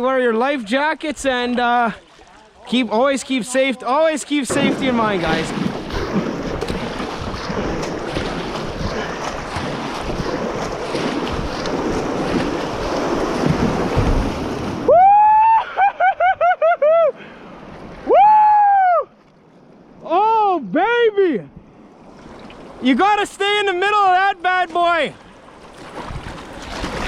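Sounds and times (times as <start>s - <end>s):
rushing river water: 0.0s - 15.9s, 21.7s - 27.0s
wind buffeting microphone: 4.5s - 14.9s, 25.8s - 27.0s.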